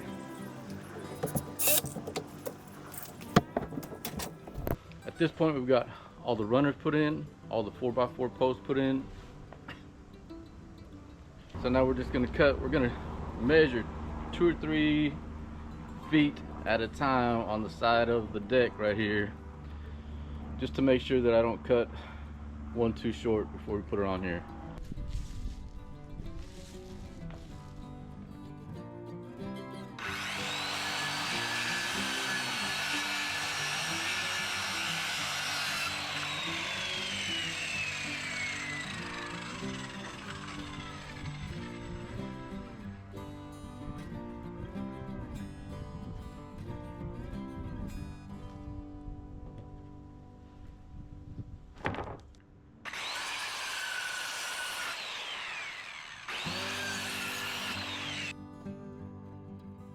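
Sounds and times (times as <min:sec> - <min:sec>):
background music: 0:00.0 - 0:03.4
power saw cutting wood: 0:00.0 - 0:04.8, 0:30.0 - 0:43.0, 0:52.9 - 0:58.3.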